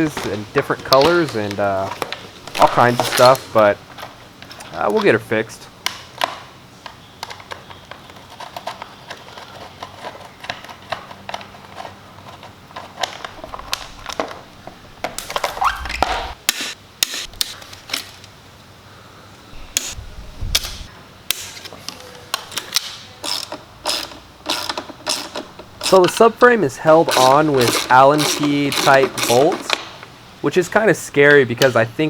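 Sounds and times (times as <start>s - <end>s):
dull thuds of parts: 19.6s - 20.9s.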